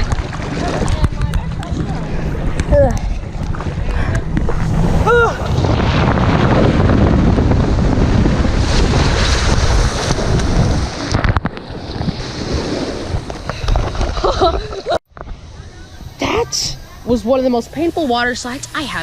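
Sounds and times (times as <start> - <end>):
wind and rushing water on microphone: 0.0 - 19.0.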